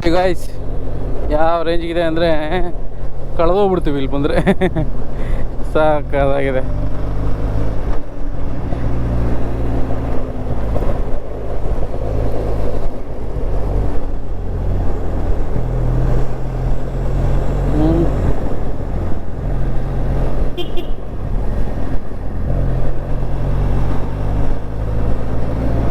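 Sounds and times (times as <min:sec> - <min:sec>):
motorcycle engine running: 0:17.6 - 0:23.4.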